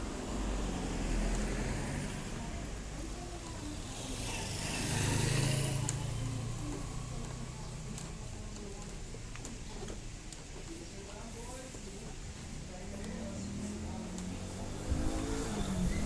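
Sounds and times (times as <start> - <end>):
motor vehicle passing by: 0.0 - 7.8, 13.2 - 16.0.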